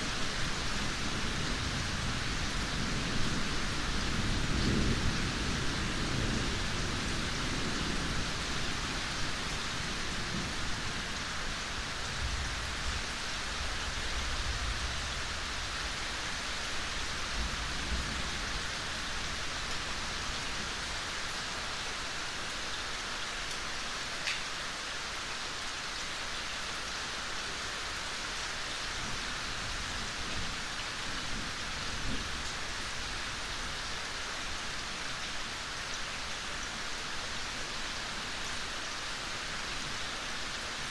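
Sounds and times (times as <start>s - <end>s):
gentle rain: 0.0s - 40.9s.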